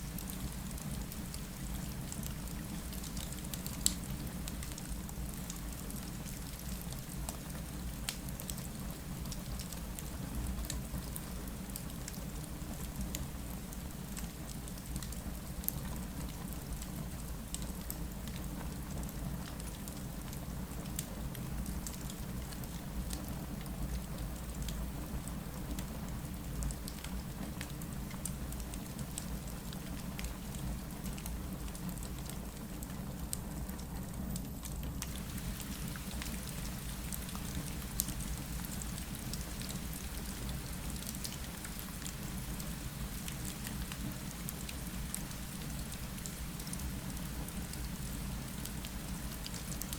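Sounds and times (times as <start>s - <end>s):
rain against a window: 0.0s - 49.9s
fireplace crackling: 35.0s - 49.6s.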